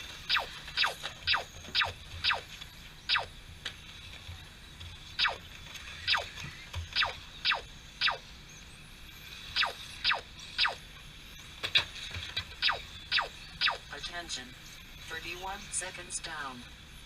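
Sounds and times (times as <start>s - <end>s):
short falling electronic tones: 6.1s - 6.4s, 7.0s - 8.3s, 9.6s - 10.8s, 12.6s - 13.9s.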